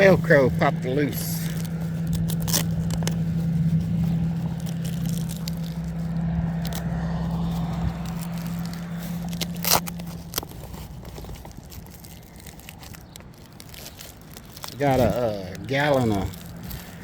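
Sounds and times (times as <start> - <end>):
steady low hum: 0.0 - 12.2
velcro strap crackling and rustling: 0.0 - 17.0.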